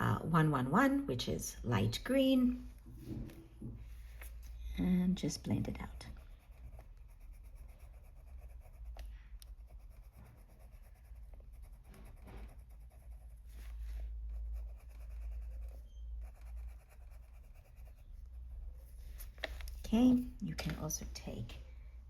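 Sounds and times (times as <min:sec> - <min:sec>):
pencil scratching on paper: 0:05.8 - 0:19.4.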